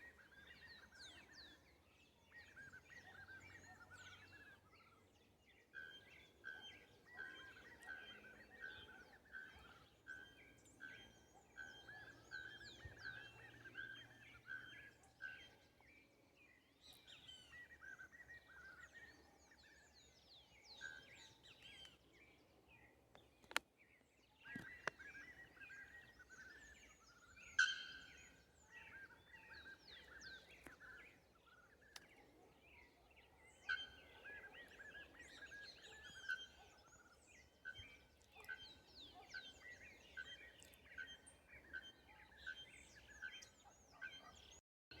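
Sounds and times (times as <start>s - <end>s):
birds chirping and whistling: 5.7s - 15.6s, 24.4s - 44.6s.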